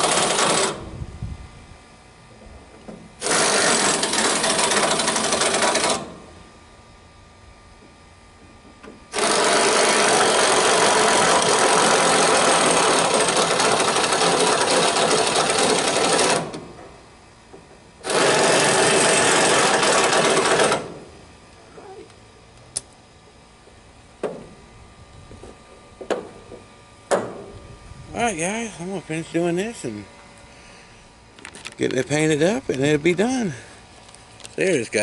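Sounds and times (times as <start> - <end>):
impact wrench hammering: 18.0 - 21.0.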